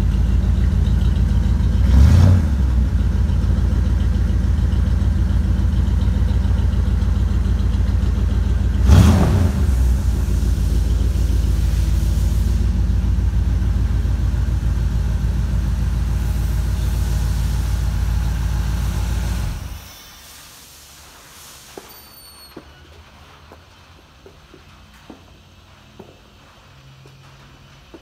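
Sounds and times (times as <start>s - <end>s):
engine idling with throttle blip: 0.0s - 20.2s.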